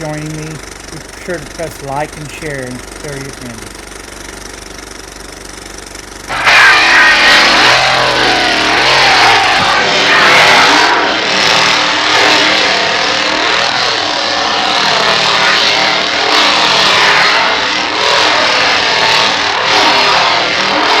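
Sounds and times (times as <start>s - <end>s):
engine revving: 0.0s - 21.0s.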